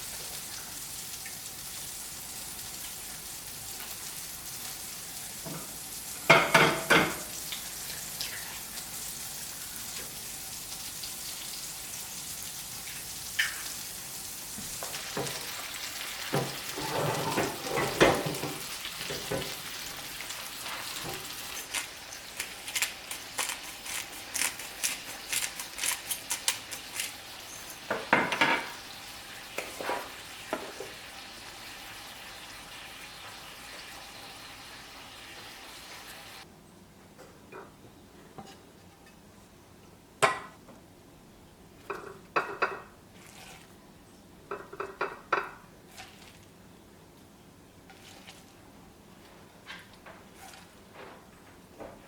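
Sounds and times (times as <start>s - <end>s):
crackling sizzling hiss: 0.0s - 36.5s.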